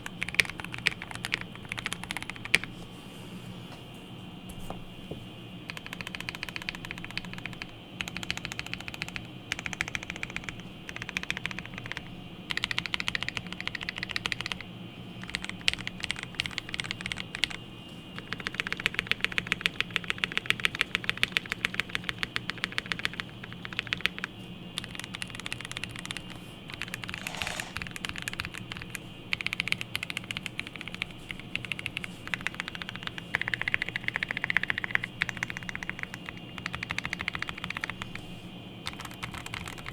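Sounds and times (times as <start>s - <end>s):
mechanical keyboard typing: 0.0s - 2.7s, 5.7s - 17.6s, 18.2s - 38.2s, 38.8s - 39.9s.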